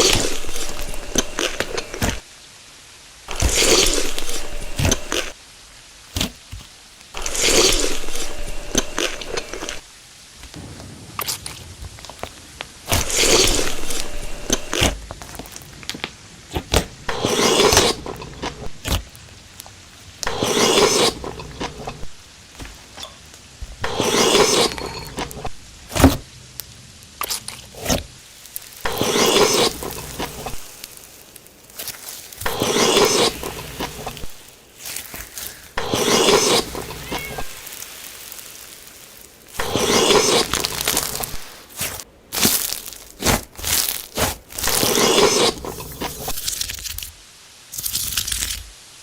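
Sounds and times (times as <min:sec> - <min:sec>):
crunchy bites and chewing: 0:03.3 - 0:05.4, 0:06.2 - 0:09.8, 0:12.9 - 0:19.1, 0:27.2 - 0:47.1, 0:47.8 - 0:48.8.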